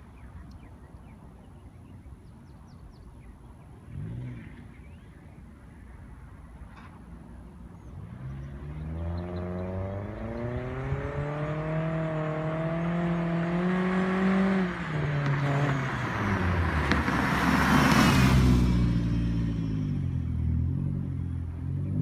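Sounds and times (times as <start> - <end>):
car engine accelerating: 7.9 - 22.0.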